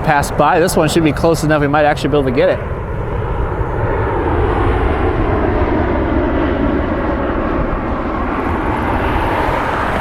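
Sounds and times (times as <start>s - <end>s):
jet engines rumbling: 0.0s - 10.0s.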